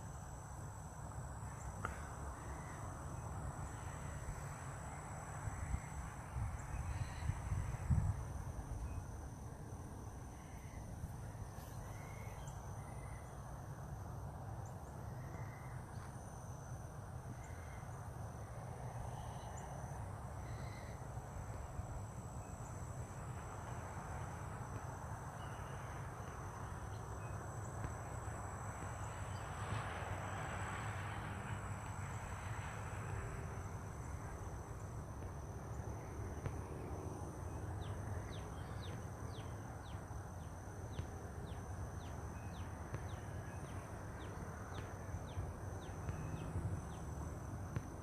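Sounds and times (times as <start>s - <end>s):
insect drone: 0.0s - 48.0s
wind on microphone: 6.4s - 8.5s.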